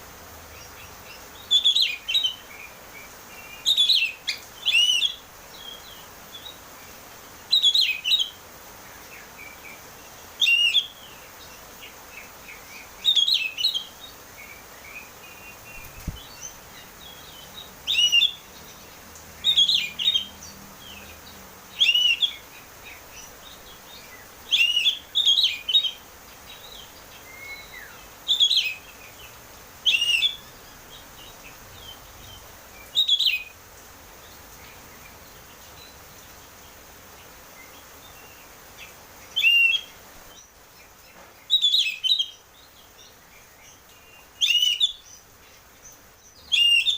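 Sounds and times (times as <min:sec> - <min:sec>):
bird singing whistled phrases: 0:01.4 - 0:02.4, 0:03.7 - 0:05.8, 0:10.4 - 0:11.0, 0:17.9 - 0:18.4, 0:21.8 - 0:22.4, 0:24.5 - 0:26.0, 0:27.2 - 0:28.8, 0:29.9 - 0:30.5, 0:32.9 - 0:33.5, 0:39.4 - 0:39.9, 0:44.4 - 0:45.0, 0:46.5 - 0:46.9.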